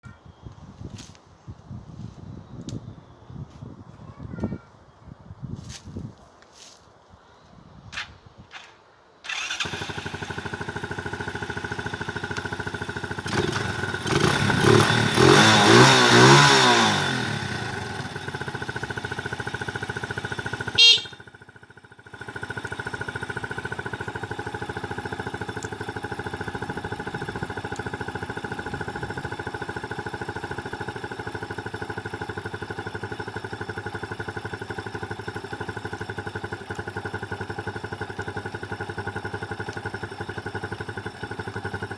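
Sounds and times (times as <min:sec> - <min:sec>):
motorcycle engine idling and revving: 0:07.9 - 0:41.9.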